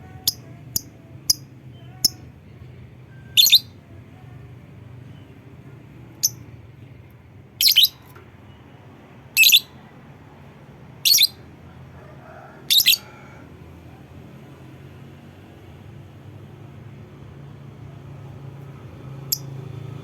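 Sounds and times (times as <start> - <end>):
bird high-pitched calls: 3.3 - 3.7, 7.6 - 8.0, 9.4 - 9.7, 11.1 - 11.4, 12.7 - 13.1.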